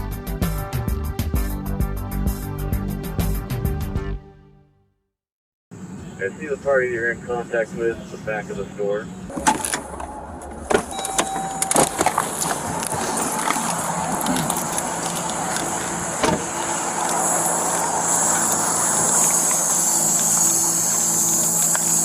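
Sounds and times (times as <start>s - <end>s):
short beep: 10.9s - 12.2s
steady rushing noise: 11.6s - 22.0s.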